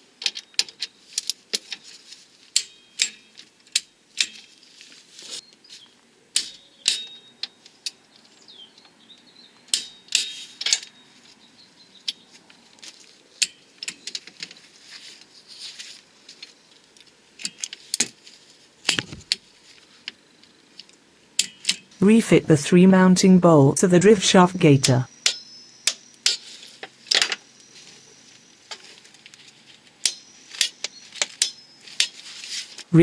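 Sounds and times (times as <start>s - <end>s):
metal tools clinking on car parts: 0.2s - 4.7s, 6.4s - 8.4s, 9.7s - 11.2s, 12.0s - 16.7s, 17.4s - 18.2s, 21.4s - 22.0s, 25.1s - 32.9s.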